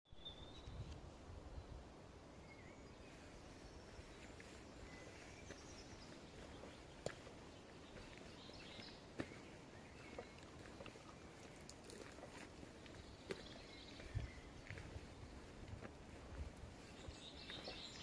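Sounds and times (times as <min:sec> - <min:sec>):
faint birds chirping: 0:00.1 - 0:18.0.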